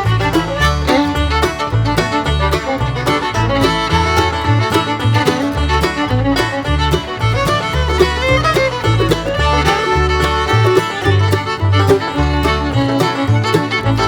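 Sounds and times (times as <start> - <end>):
fiddle: 0.0 - 14.0
guitar: 0.0 - 14.0
plucked banjo: 0.0 - 14.0
steady bass line: 0.0 - 14.0.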